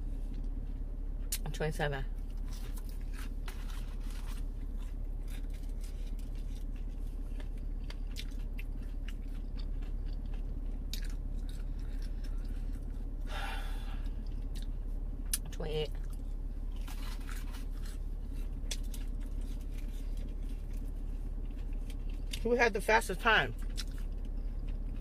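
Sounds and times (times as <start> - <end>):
person chewing: 2.2 - 22.4, 23.6 - 25.0.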